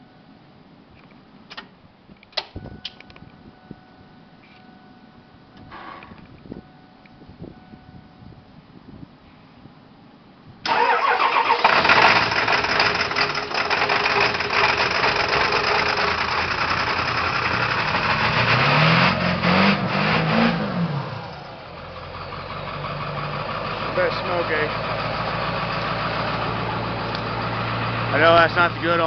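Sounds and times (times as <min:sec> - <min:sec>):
diesel engine starting and revving: 0:10.6 - 0:29.0.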